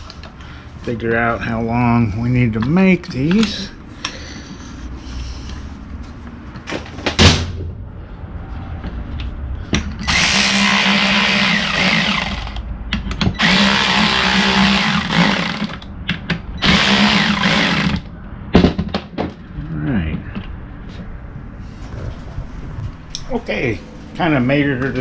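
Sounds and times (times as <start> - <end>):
power drill running: 10.0 - 12.6, 13.4 - 15.8, 16.6 - 18.1.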